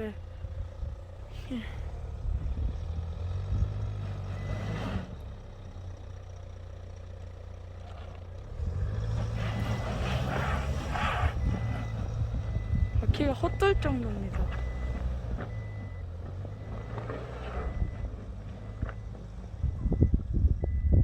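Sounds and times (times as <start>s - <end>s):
vehicle engine under load: 0.0s - 21.0s
wheels slipping on snow: 9.1s - 11.9s.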